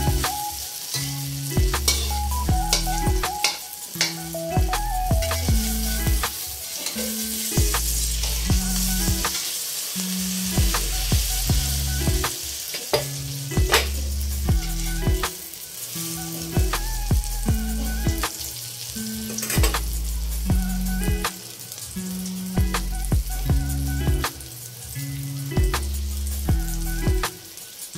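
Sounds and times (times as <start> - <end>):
background music with bass and beat: 0.0 - 9.4, 10.1 - 27.5
omelettes sizzling in oil: 0.0 - 27.9
metal spatula scraping a pan: 1.9 - 4.3, 6.6 - 8.5.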